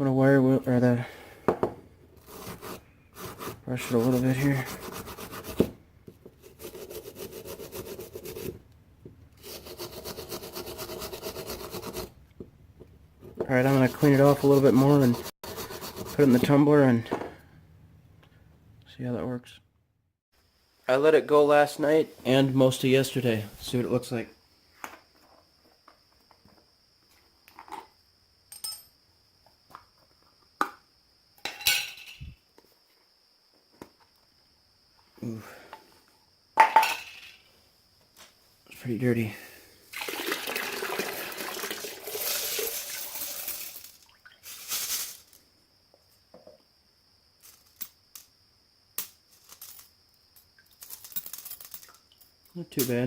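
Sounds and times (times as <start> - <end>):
brush scrubbing brass valve: 2.3 - 5.6, 13.6 - 16.5
metal parts clinking: 31.4 - 32.4, 49.0 - 53.0.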